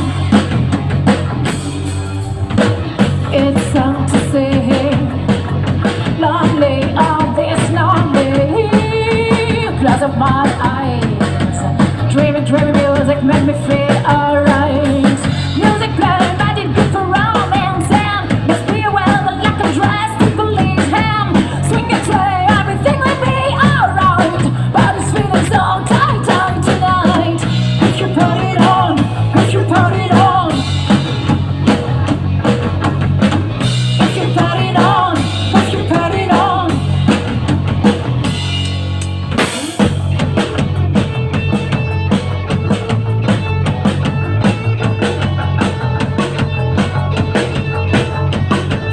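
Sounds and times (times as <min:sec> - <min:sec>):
guitar: 0:00.0 - 0:48.9
rock band playing: 0:00.0 - 0:48.9
person singing: 0:03.3 - 0:31.4, 0:34.0 - 0:37.4.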